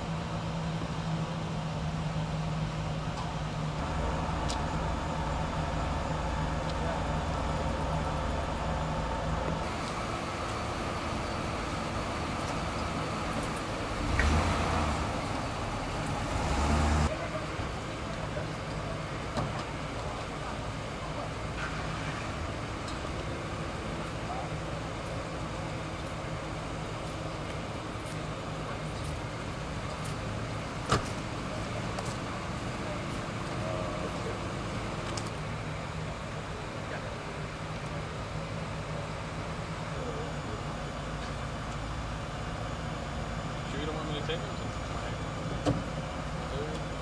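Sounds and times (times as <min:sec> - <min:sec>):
street traffic: 0:00.0 - 0:47.0
loud passing vehicle: 0:03.8 - 0:17.4.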